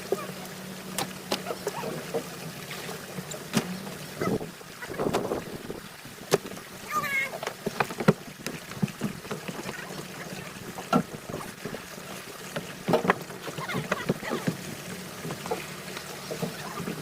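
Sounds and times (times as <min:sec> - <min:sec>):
boat engine humming: 0:00.0 - 0:17.0
knocks and clatter on board: 0:03.5 - 0:06.6, 0:07.4 - 0:11.9, 0:12.5 - 0:17.0.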